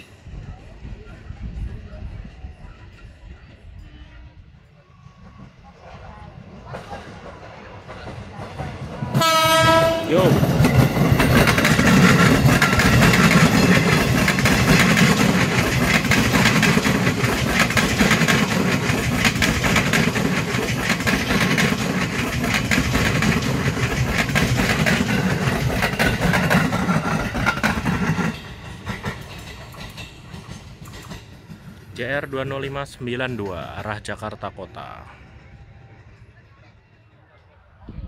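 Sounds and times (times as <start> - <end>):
train wheels clattering: 6.7 - 33.9.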